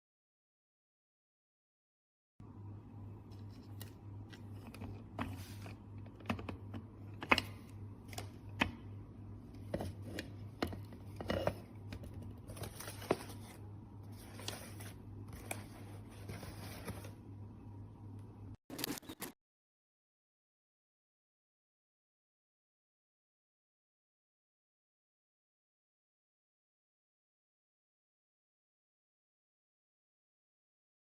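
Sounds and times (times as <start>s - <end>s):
low electrical hum: 2.4s - 19.2s.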